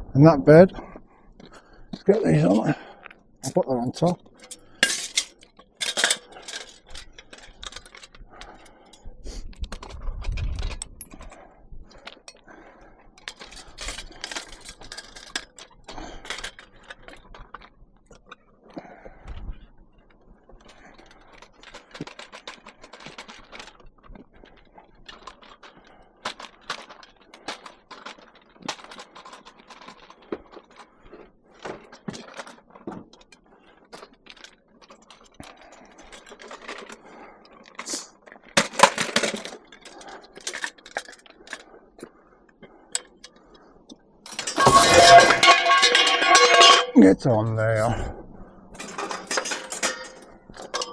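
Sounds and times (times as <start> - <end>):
scrap metal and plastic clanking: 4.4 - 8.1, 13.2 - 15.7, 38.6 - 41.6, 44.3 - 47.1, 48.8 - 50.9.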